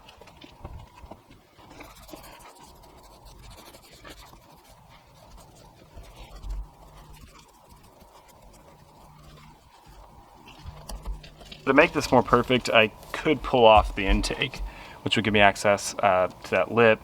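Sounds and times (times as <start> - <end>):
brush scratching: 1.6 - 14.9
low bump: 10.6 - 14.9.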